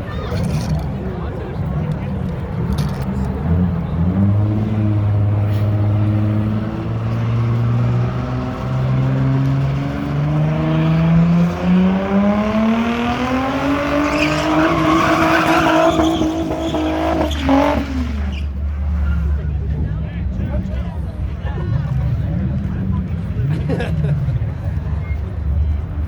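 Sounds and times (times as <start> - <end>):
car engine revving: 0.4 - 20.5.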